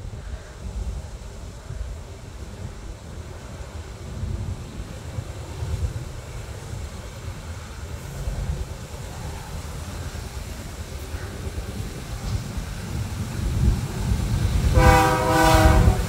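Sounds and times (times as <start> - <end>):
diesel locomotives rumbling: 0.0 - 16.0
wind buffeting microphone: 0.0 - 16.0.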